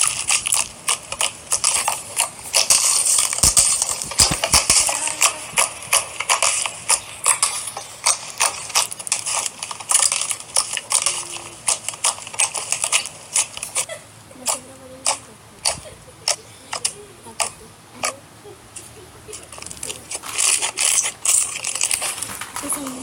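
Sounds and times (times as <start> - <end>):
slime clicking and popping: 0.0 - 13.8.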